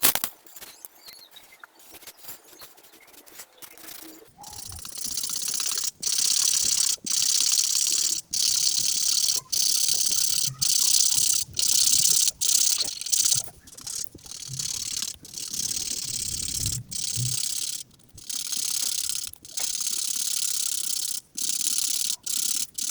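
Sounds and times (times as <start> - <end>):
coloring tool scratching paper: 4.4 - 22.9.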